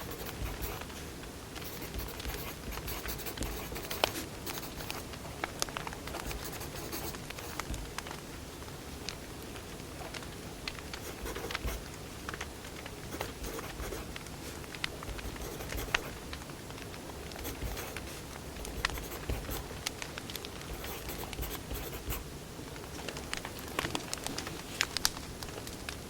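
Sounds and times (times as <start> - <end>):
wood fire popping and snapping: 5.1 - 6.2, 7.2 - 11.0
low hiss of burning logs: 7.2 - 11.0, 11.6 - 13.0, 14.1 - 15.1.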